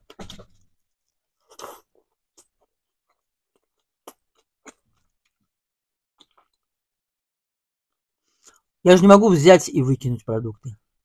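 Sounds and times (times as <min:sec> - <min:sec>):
lip smacks and wet clicks: 0:02.4 - 0:05.4.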